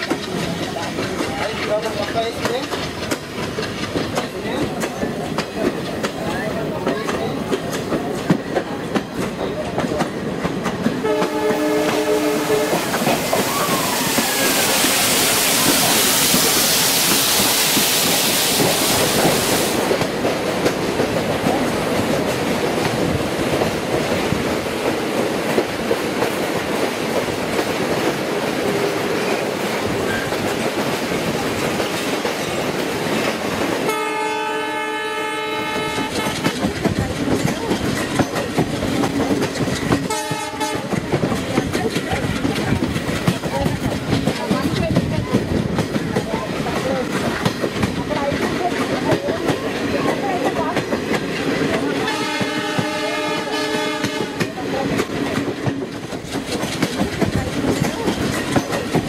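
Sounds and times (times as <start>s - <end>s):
train clattering on track: 0.0s - 59.0s
locomotive horn blasts: 11.0s - 12.9s, 33.9s - 36.5s, 40.1s - 40.9s, 52.1s - 54.5s
loud rushing hiss: 12.8s - 20.1s.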